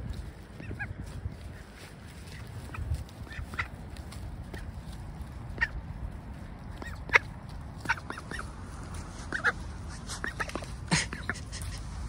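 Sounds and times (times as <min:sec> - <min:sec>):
birds giving short calls: 0:00.6 - 0:01.0, 0:06.6 - 0:12.0.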